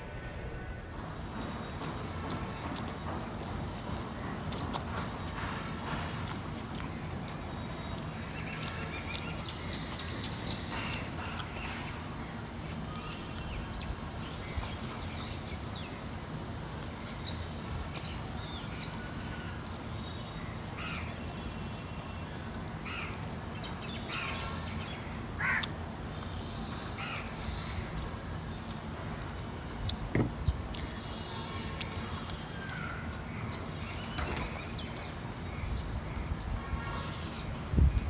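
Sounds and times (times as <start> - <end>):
crows cawing: 25.3 - 25.9, 26.6 - 28.0.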